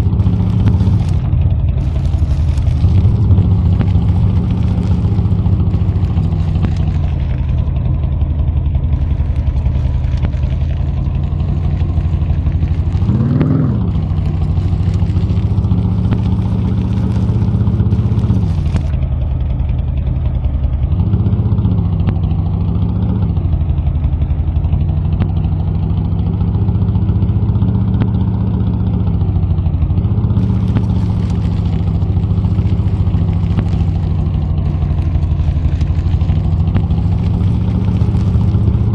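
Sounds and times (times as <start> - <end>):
truck engine revving: 0.0 - 19.0, 30.0 - 38.9.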